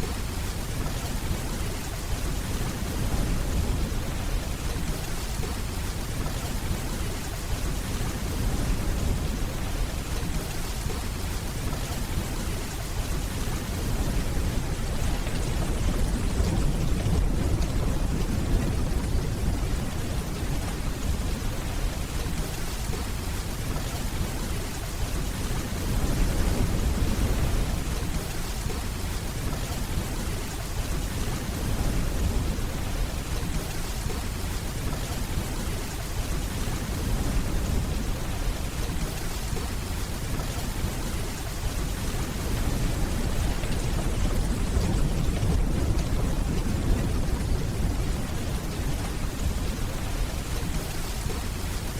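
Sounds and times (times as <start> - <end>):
heavy rainfall: 0.0 - 51.9
distant thunder rumbling: 1.2 - 24.4, 41.7 - 51.7.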